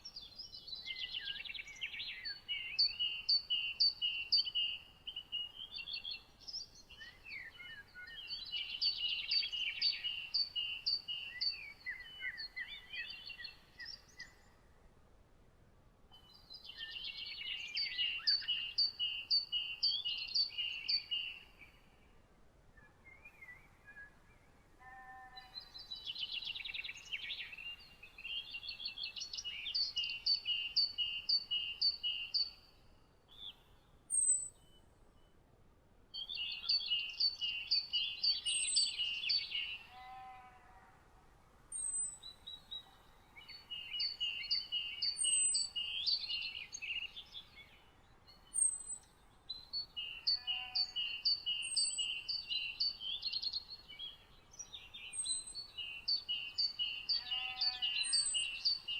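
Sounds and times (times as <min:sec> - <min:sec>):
bird singing rapid phrases: 0:00.0 - 0:14.5, 0:16.2 - 0:21.8, 0:25.6 - 0:32.8, 0:36.2 - 0:39.9, 0:41.7 - 0:58.9.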